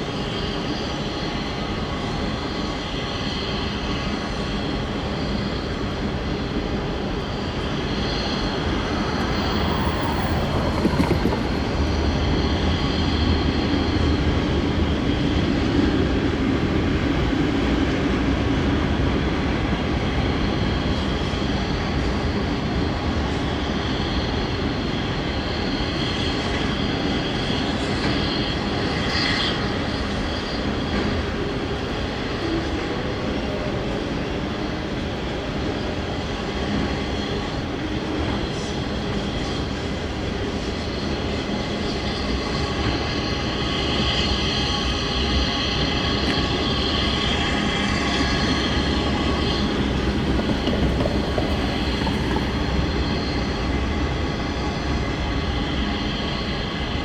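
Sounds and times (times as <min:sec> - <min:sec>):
freight train wheels rumbling: 0:06.7 - 0:14.6, 0:47.6 - 0:53.6
wheel squeal: 0:08.0 - 0:13.2, 0:48.6 - 0:53.2.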